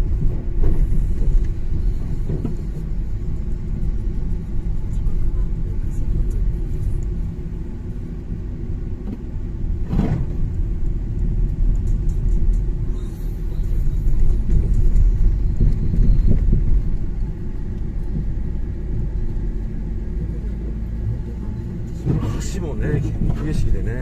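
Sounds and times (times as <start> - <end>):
car engine and tyres rumbling: 0.0 - 24.0.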